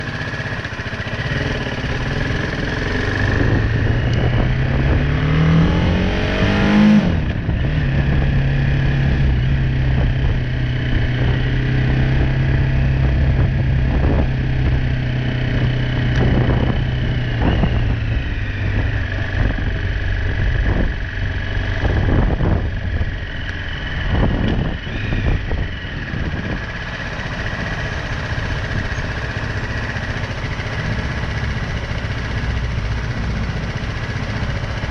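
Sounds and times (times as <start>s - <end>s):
motorcycle engine revving: 0.0s - 34.9s
road and wind noise: 0.0s - 34.9s.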